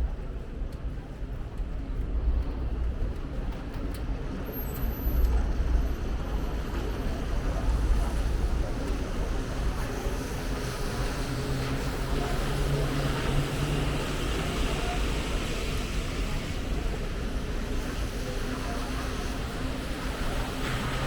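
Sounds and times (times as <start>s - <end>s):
hiss of rain on wet street: 4.9s - 21.0s.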